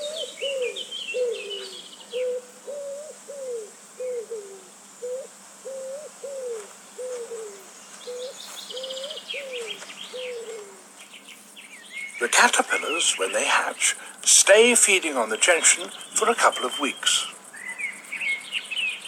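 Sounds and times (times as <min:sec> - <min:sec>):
bird hooting and cooing: 0:00.0 - 0:11.0, 0:17.5 - 0:19.0
small bird high chirps: 0:08.0 - 0:12.9.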